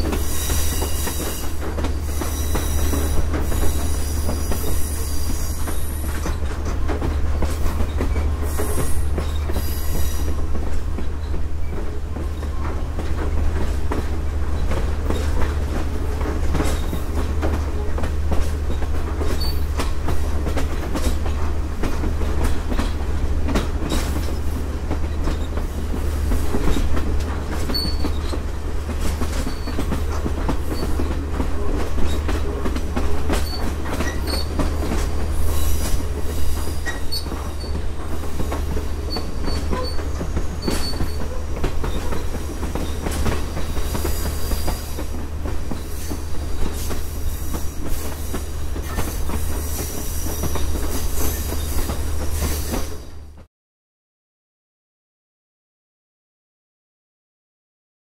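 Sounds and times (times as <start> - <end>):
train car rumbling on rails: 0.0 - 53.5
high wheel squeal: 0.3 - 6.2, 35.4 - 37.8, 39.1 - 43.0.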